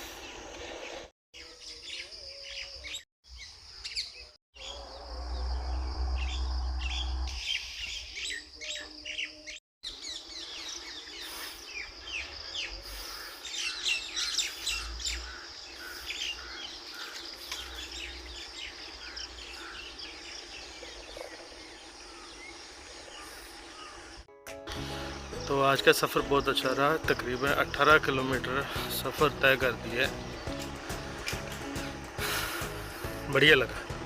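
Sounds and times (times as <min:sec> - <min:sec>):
small birds chirping: 0:00.0 - 0:04.8, 0:06.2 - 0:34.0
low rumble: 0:04.8 - 0:07.4.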